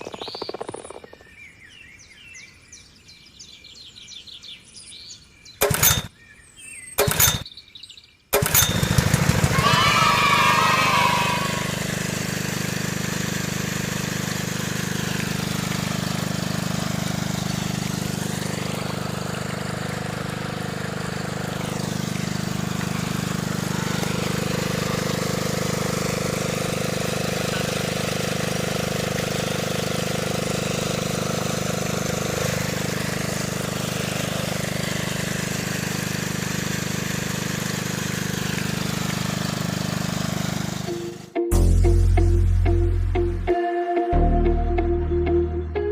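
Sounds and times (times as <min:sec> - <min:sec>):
small motor humming: 0:05.6 - 0:06.1, 0:07.0 - 0:07.4, 0:08.4 - 0:41.3.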